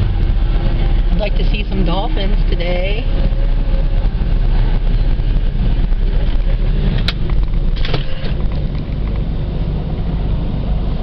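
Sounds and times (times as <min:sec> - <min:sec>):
ferry engine rumble: 0:00.0 - 0:11.0
short rattle: 0:06.3 - 0:09.3.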